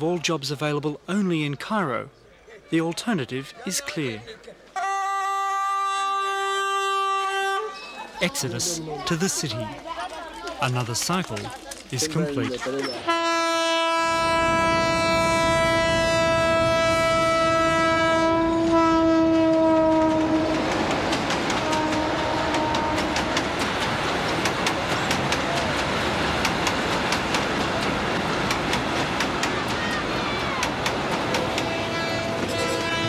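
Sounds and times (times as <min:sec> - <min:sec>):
train horn blast: 0:04.8 - 0:07.9, 0:13.0 - 0:20.8, 0:21.5 - 0:23.4, 0:31.5 - 0:33.0
carriages rumbling: 0:07.7 - 0:33.0
wheels clicking over rail joints: 0:19.5 - 0:33.0.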